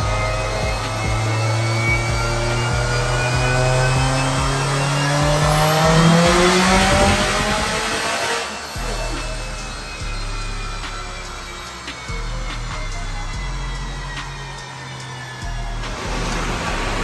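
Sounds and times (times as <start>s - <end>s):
car engine at full throttle: 0.0s - 17.0s.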